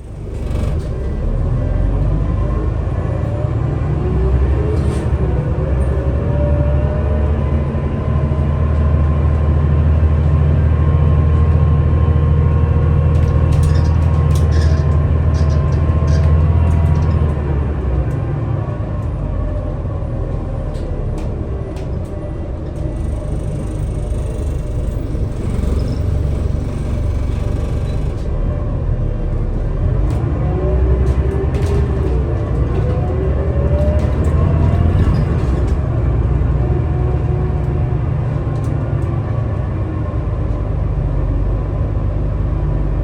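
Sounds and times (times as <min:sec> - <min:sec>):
bus engine droning: 0:00.0 - 0:43.0
light rattles: 0:13.1 - 0:17.6.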